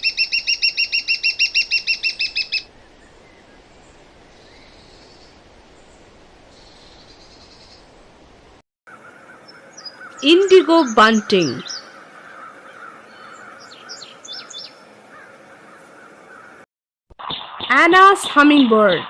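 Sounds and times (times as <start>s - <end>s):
shrike calling sharp high notes: 10.2s - 11.7s.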